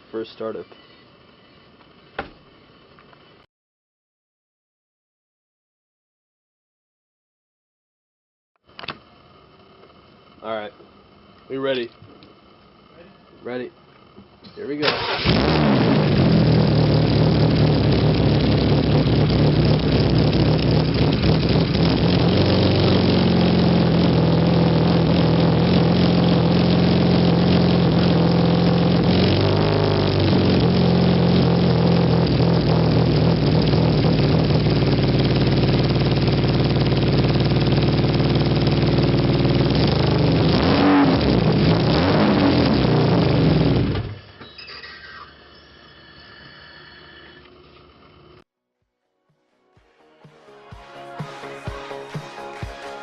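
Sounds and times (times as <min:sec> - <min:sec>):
car engine idling and revving: 0:15.0 - 0:44.2.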